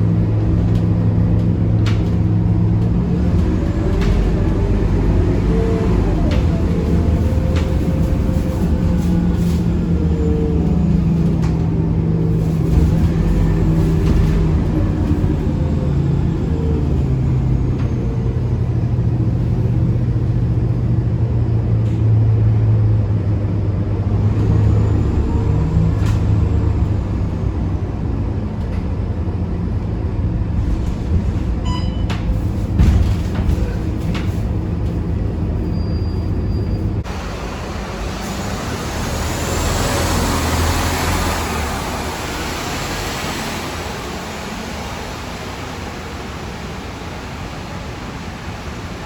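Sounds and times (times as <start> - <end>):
bus diesel engine running: 0.0 - 49.0.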